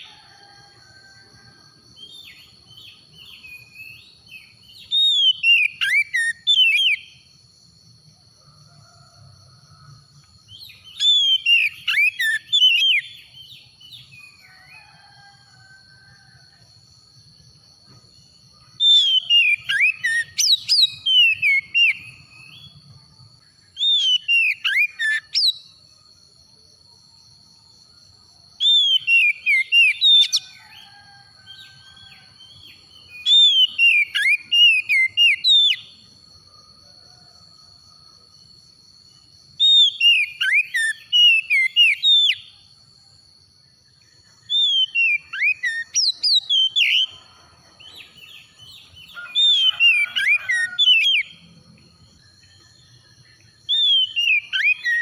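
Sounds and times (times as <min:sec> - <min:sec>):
bird singing whistled notes: 0:02.0 - 0:07.2, 0:10.5 - 0:14.8, 0:18.8 - 0:22.8, 0:23.6 - 0:25.8, 0:28.6 - 0:31.0, 0:31.6 - 0:36.0, 0:39.6 - 0:42.6, 0:44.4 - 0:47.2, 0:52.2 - 0:55.0.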